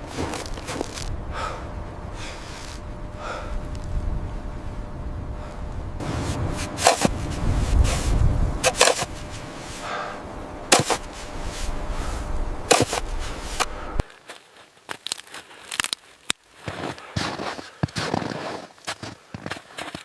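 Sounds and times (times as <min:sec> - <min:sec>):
sharp knocks and crunches: 0:00.0 - 0:01.2, 0:06.1 - 0:09.6, 0:10.7 - 0:11.6, 0:12.7 - 0:20.0
low rumble: 0:00.0 - 0:14.0.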